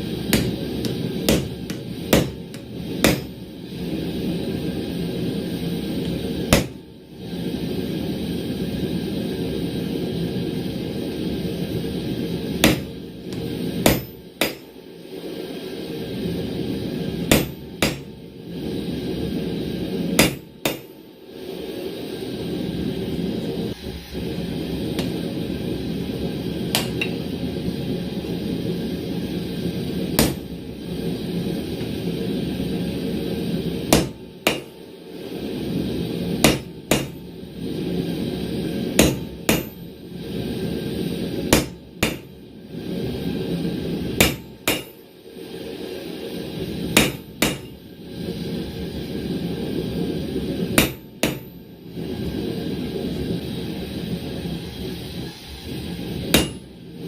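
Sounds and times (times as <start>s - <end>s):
hammer striking chisel: 0.3s - 3.3s, 6.5s - 6.8s, 12.6s - 14.6s, 17.3s - 18.1s, 20.2s - 20.9s, 26.7s - 27.2s, 30.2s - 30.5s, 33.9s - 34.7s, 36.4s - 37.2s, 39.0s - 39.8s, 41.5s - 42.3s, 44.2s - 45.0s, 47.0s - 47.7s, 50.8s - 51.5s, 56.3s - 56.6s.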